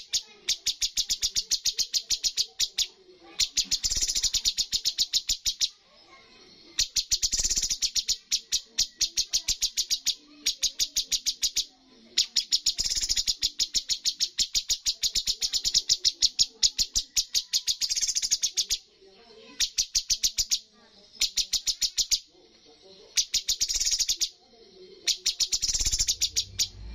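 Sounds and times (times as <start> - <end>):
bird singing rapid high notes: 0.0 - 5.8, 6.8 - 18.8, 23.2 - 24.3, 25.1 - 26.9.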